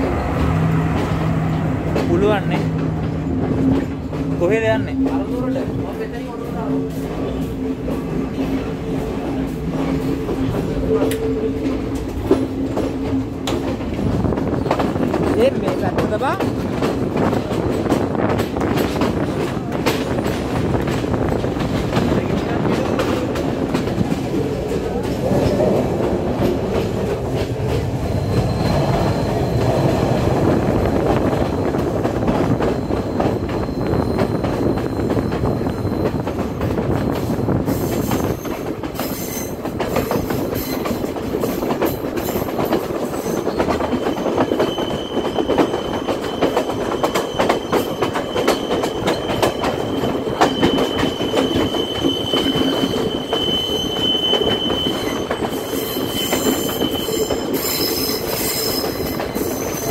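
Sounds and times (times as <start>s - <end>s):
train wheels rumbling and rattling: 0.0s - 59.9s
clicking from rail joints: 9.7s - 28.0s
high wheel squeal: 28.0s - 30.2s, 32.4s - 36.6s, 37.2s - 41.6s, 43.1s - 59.9s.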